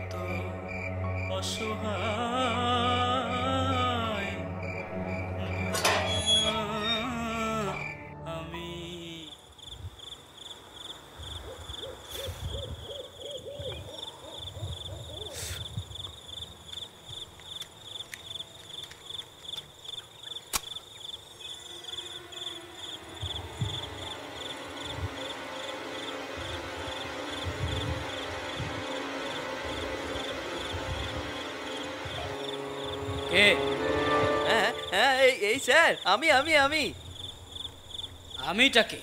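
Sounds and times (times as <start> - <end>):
crickets chirping: 0.0 - 8.2, 8.8 - 39.0
sharp click: 20.5 - 20.8.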